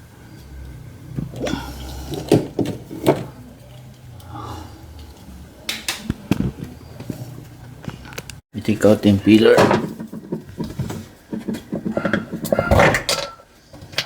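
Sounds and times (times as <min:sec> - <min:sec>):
hand tools knocking and clattering: 0:09.4 - 0:14.0.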